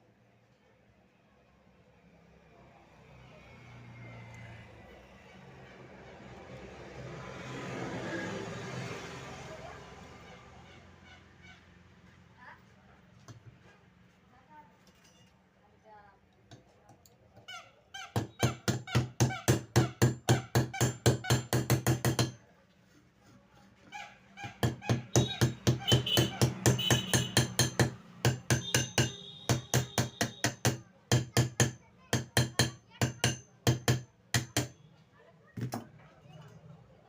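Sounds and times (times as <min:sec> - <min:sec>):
small hammer tapping metal: 0:18.1 - 0:22.4, 0:24.5 - 0:34.8.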